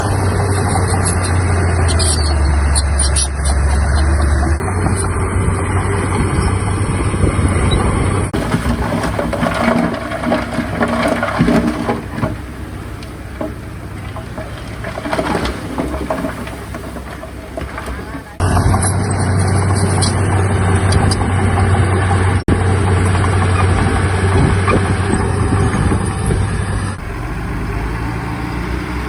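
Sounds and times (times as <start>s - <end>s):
heavy machinery engine drone: 0.0s - 29.0s.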